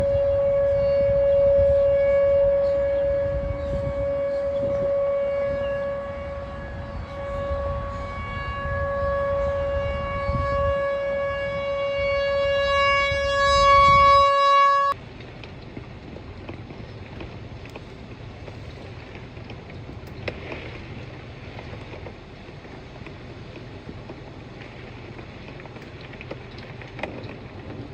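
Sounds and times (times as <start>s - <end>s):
warning siren steady tone: 0.0s - 15.0s
low hum: 0.0s - 27.9s
wind rumbling on microphone: 0.0s - 27.9s.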